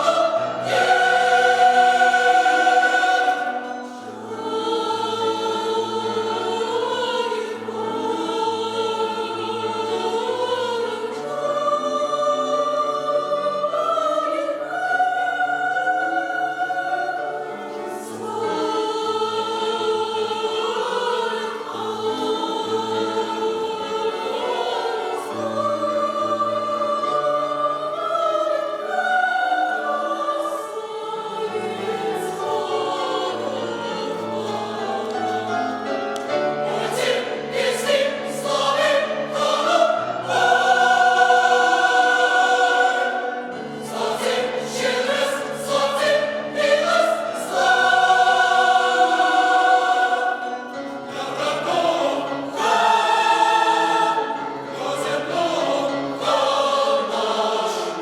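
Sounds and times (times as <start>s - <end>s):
mixed choir singing a cappella: 0.0s - 58.0s.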